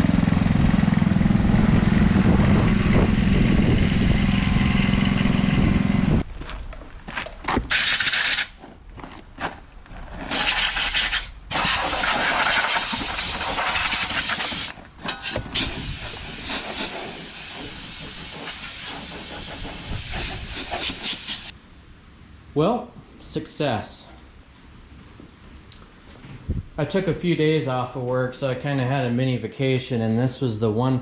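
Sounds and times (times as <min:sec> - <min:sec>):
garden tractor engine hum: 0:00.0 - 0:06.2, 0:13.1 - 0:21.5
loud hissing noise: 0:07.7 - 0:08.6, 0:10.3 - 0:14.8, 0:15.5 - 0:21.6.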